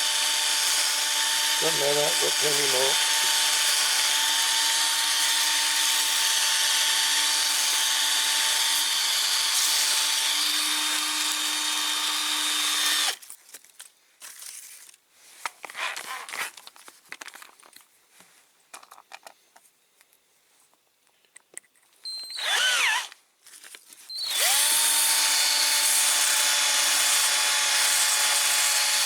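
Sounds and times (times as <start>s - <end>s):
cordless drill motor whine: 0.0s - 13.2s, 22.0s - 23.2s, 24.1s - 29.0s.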